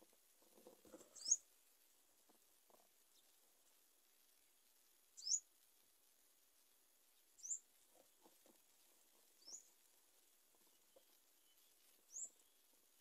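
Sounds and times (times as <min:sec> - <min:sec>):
bird chirping: 0:00.9 - 0:01.5, 0:05.2 - 0:05.5, 0:07.1 - 0:09.9, 0:10.5 - 0:13.0.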